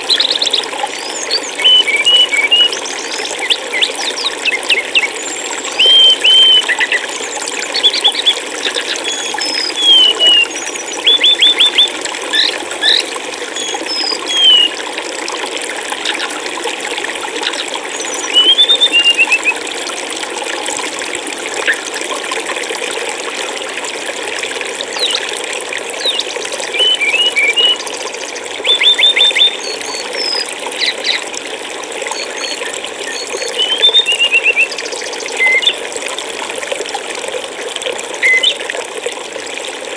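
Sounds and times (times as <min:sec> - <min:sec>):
flowing water: 0:00.0 - 0:39.9
small birds chirping: 0:00.1 - 0:14.8, 0:17.4 - 0:19.5, 0:26.0 - 0:31.2, 0:32.2 - 0:35.8.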